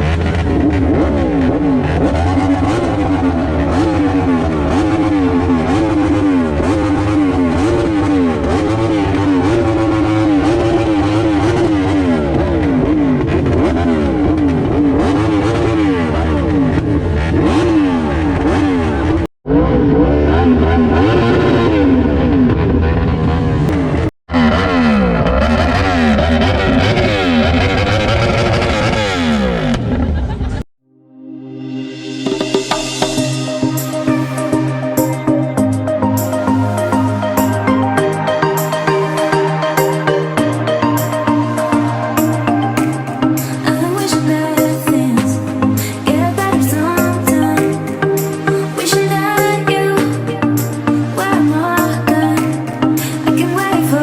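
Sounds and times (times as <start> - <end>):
motorcycle engine revving: 0.0 - 30.7.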